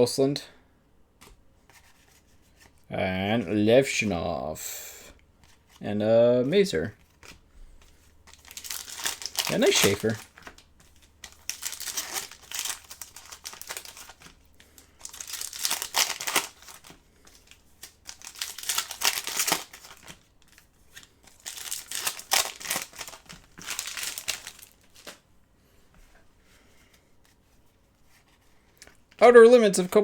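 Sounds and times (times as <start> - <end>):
card pack wrappers tearing and crinkling: 6.9 - 25.2.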